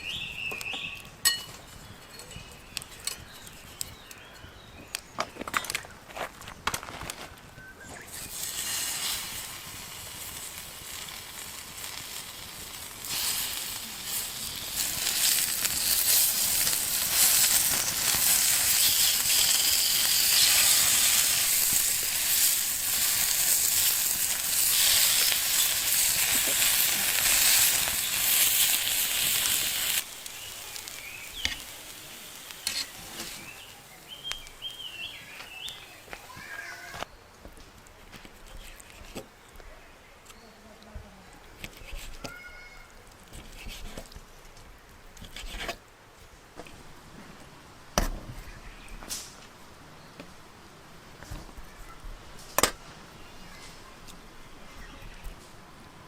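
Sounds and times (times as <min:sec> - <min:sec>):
food sizzling in a frying pan: 0:08.1 - 0:36.8.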